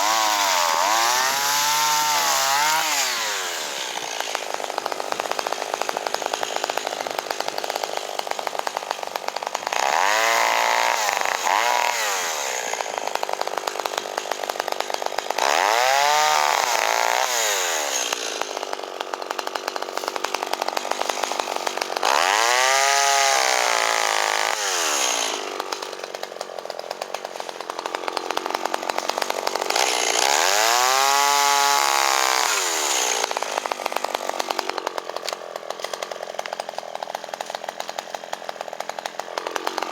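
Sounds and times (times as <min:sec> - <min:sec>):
chainsaw revving and cutting: 0:00.0 - 0:39.9.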